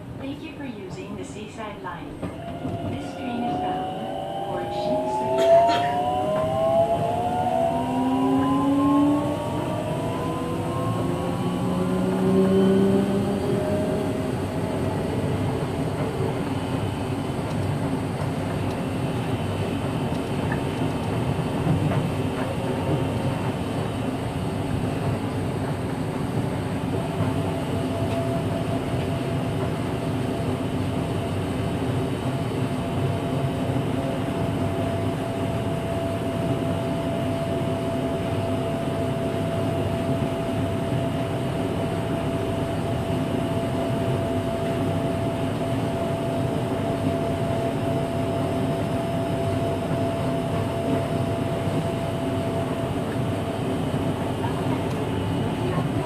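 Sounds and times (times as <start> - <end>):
train inverter whine: 0.0 - 56.0
train rolling noise: 0.0 - 56.0.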